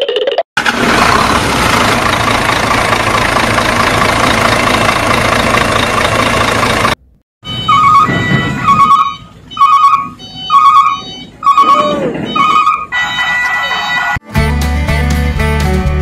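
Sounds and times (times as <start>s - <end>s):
engine running: 0.6s - 7.9s.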